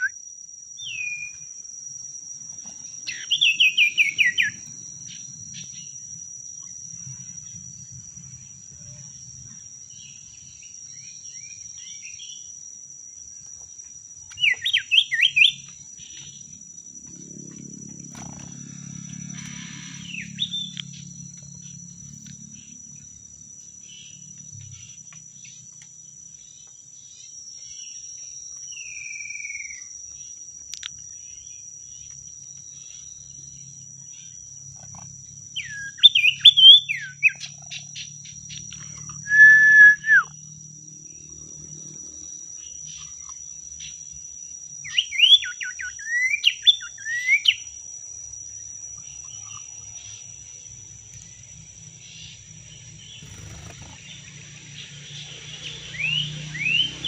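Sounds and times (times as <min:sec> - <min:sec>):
high-pitched insect drone: 0:00.0 - 0:57.0
bird chirping and whistling: 0:03.1 - 0:04.6, 0:14.4 - 0:15.6, 0:35.6 - 0:37.4, 0:39.2 - 0:40.4, 0:55.9 - 0:56.9.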